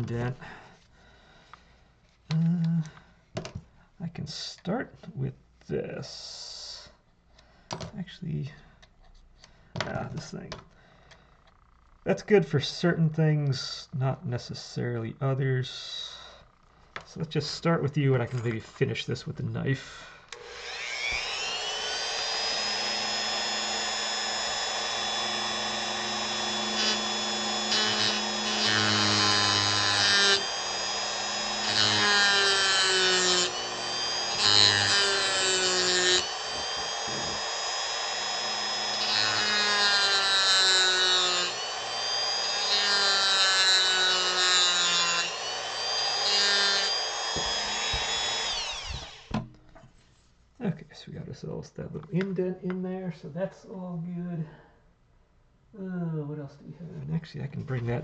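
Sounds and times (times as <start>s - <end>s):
rotary tool grinding wood: 20.4s - 49.3s.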